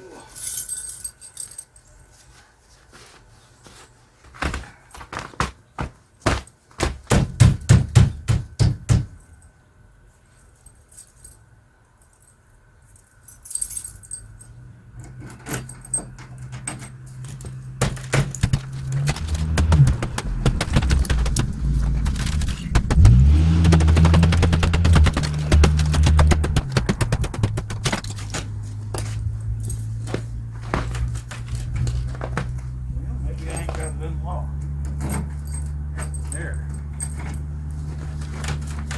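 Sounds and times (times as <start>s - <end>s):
keys clattering: 0.3s - 2.0s, 10.3s - 19.6s, 27.5s - 32.7s, 33.4s - 38.9s
pickup engine cranking and revving: 14.9s - 38.9s.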